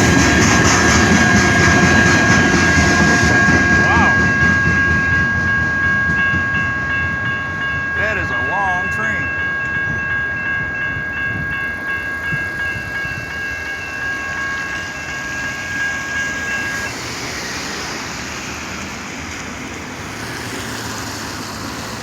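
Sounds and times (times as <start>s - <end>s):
train wagons rumbling on rails: 0.0s - 22.0s
high ringing tone: 1.0s - 17.0s.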